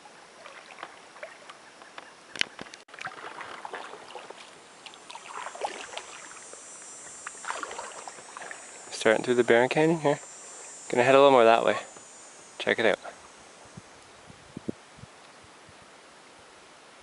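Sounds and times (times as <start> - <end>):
paddle splashing in water: 0.4 - 1.6, 2.9 - 8.8.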